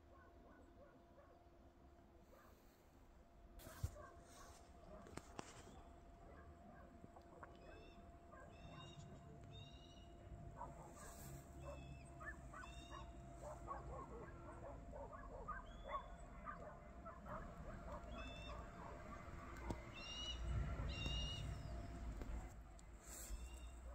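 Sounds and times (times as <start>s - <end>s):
birds calling: 7.5s - 23.9s.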